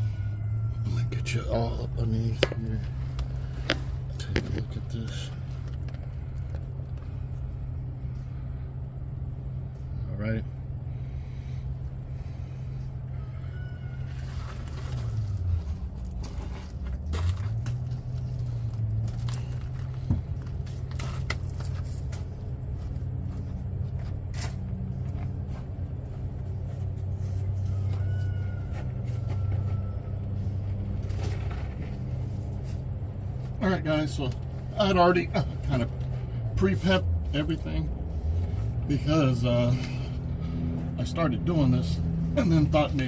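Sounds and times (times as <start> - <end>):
low engine drone: 0.0 - 43.0
handling clicks and scrapes: 14.0 - 25.4.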